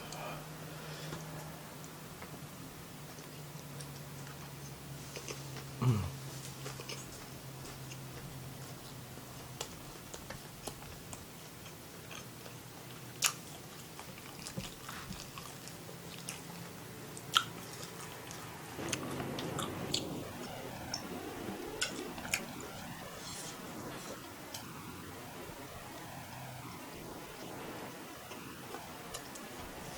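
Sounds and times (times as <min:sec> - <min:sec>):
chewing food close up: 0:06.5 - 0:21.0.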